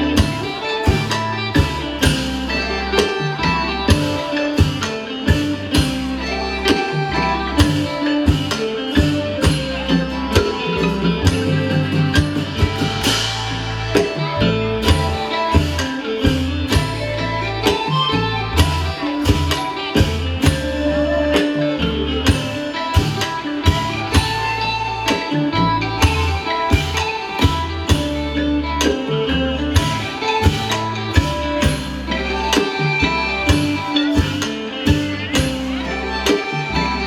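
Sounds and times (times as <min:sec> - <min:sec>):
drums and percussion: 0:00.0 - 0:37.0
melodic instruments: 0:00.0 - 0:37.0
plucked strings: 0:00.0 - 0:37.0.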